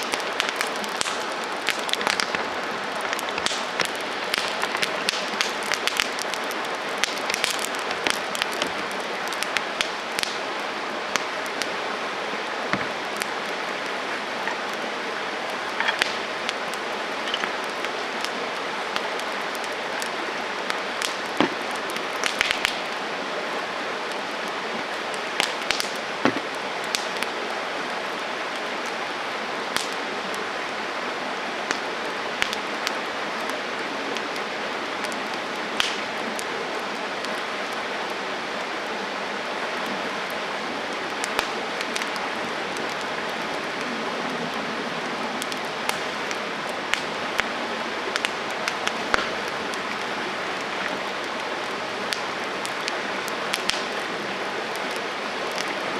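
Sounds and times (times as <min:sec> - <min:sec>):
sharp pops of fire: 0:00.0 - 0:10.5, 0:12.7 - 0:14.8, 0:15.6 - 0:18.4, 0:20.7 - 0:22.9, 0:25.4 - 0:27.3, 0:35.8 - 0:36.1, 0:45.4 - 0:51.0, 0:53.5 - 0:54.1
campfire hissing and crackling: 0:00.0 - 0:55.9.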